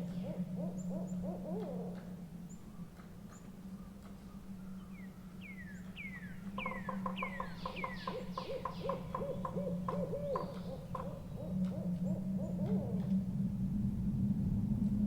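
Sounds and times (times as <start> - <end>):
owl hooting: 0.0 - 2.2, 6.6 - 13.3
low drone: 9.4 - 15.0.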